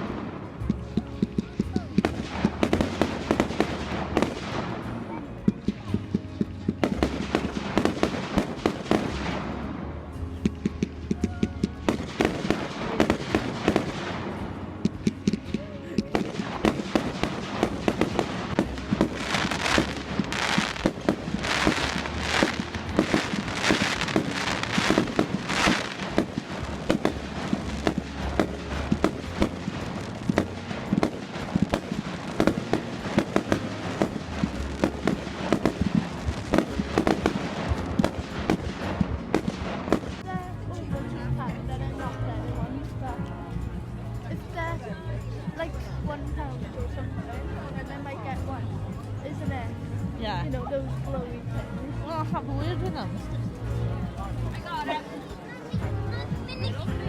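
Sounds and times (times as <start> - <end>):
fireworks bangs and crackles: 0.0 - 42.7.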